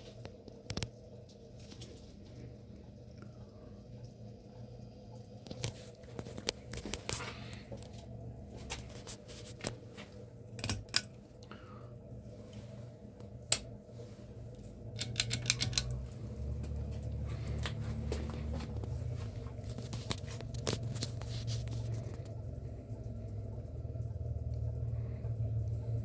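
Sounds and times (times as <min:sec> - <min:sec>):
ceiling fan motor hum: 0:00.0 - 0:26.0
sharp clicks: 0:15.0 - 0:16.1
rattle of clicks: 0:15.0 - 0:18.4.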